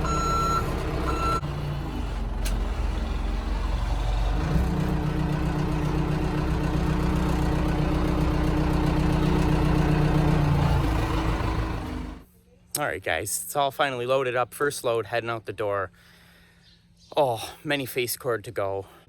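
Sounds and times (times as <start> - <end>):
reversing alarm beeping: 0.0 - 1.4
diesel engine running: 0.0 - 12.3.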